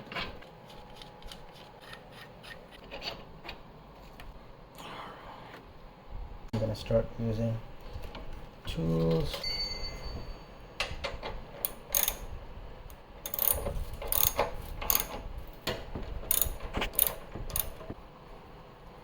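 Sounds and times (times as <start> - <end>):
hand ratchet clicking: 11.6 - 12.3, 13.2 - 15.2, 16.3 - 17.8.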